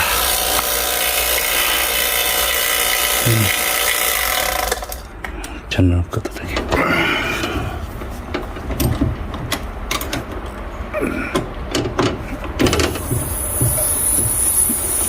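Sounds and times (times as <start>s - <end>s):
hands clicking and knocking on controls: 7.4s - 10.7s, 11.3s - 15.0s
steady high hiss: 13.1s - 15.0s.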